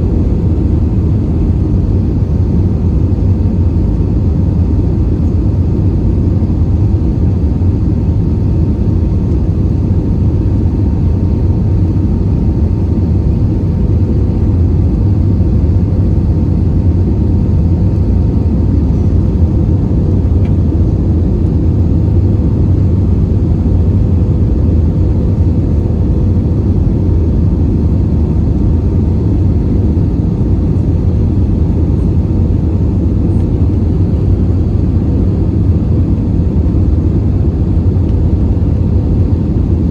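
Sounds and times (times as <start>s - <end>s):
jet engines rumbling: 0.0s - 39.9s
thin steady hum: 0.0s - 39.9s.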